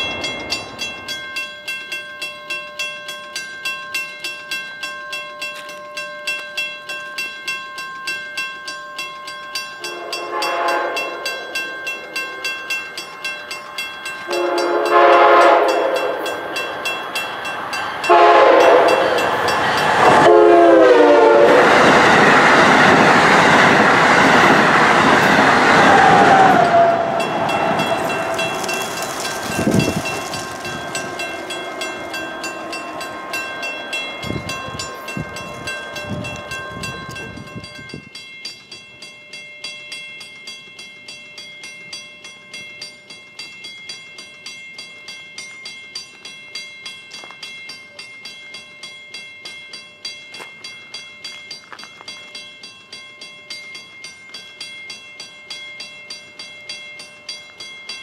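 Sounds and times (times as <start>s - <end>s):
train rumble: 0.0s - 4.6s, 9.0s - 39.4s
railroad crossing bell dinging: 0.0s - 58.0s.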